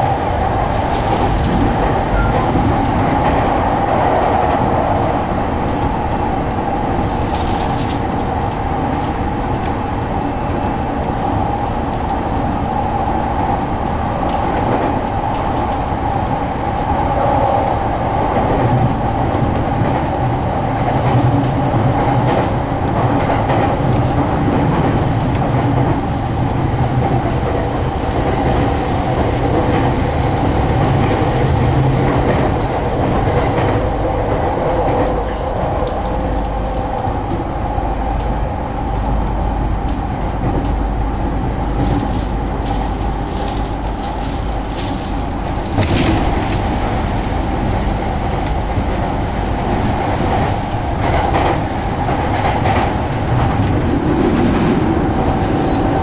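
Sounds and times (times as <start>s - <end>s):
train low rumble: 0.0s - 56.0s
wheels clacking over rail joints: 39.9s - 49.0s.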